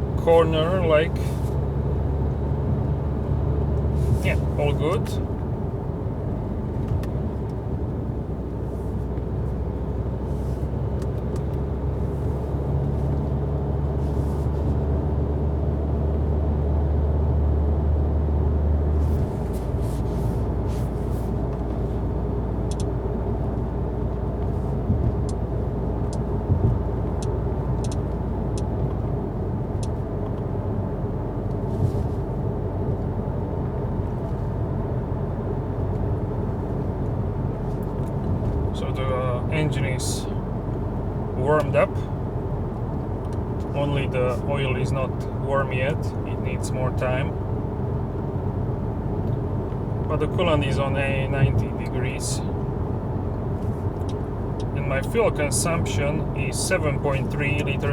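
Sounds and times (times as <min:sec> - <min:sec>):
car engine and tyre rumble: 0:00.0 - 0:57.9
faint sharp clicks: 0:27.1 - 0:28.7.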